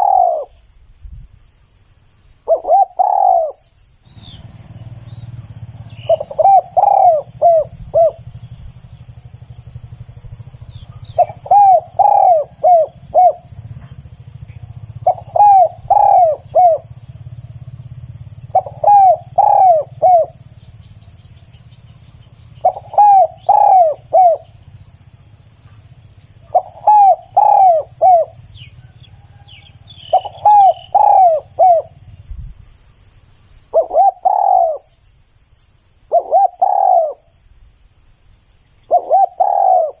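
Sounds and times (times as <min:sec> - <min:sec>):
dove cooing: 0:00.0 - 0:00.6, 0:02.4 - 0:24.9, 0:25.6 - 0:32.2, 0:33.7 - 0:35.0, 0:36.1 - 0:37.4, 0:38.8 - 0:40.0.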